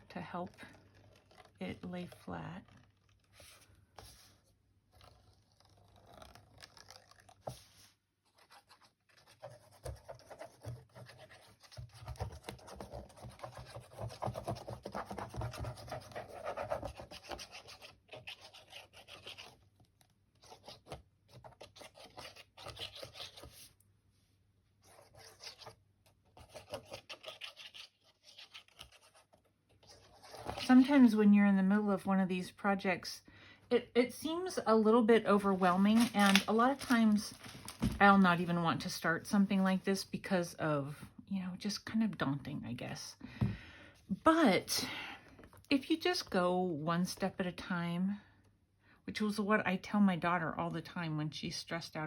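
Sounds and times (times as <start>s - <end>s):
hands rubbing paper and fabric: 35.4s - 38.4s.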